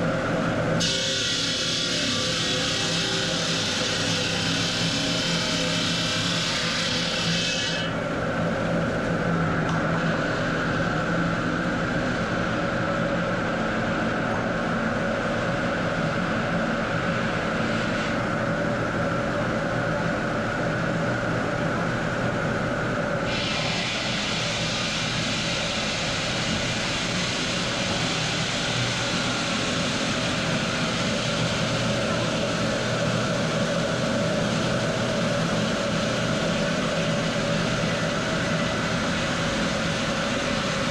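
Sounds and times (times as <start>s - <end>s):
hiss: 0.8s - 7.1s, 23.3s - 30.4s
stone-cutting machine hum: 0.8s - 8.4s.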